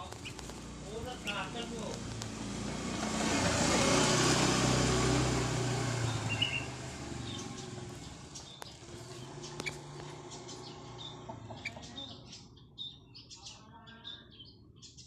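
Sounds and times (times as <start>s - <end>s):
high bird chirps: 0.0s - 2.4s, 6.0s - 15.0s
motor vehicle passing: 0.0s - 12.6s.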